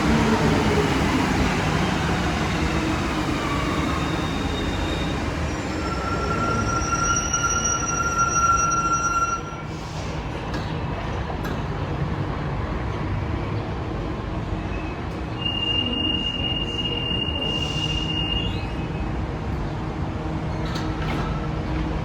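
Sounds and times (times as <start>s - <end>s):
metro train rumbling: 0.0s - 22.0s.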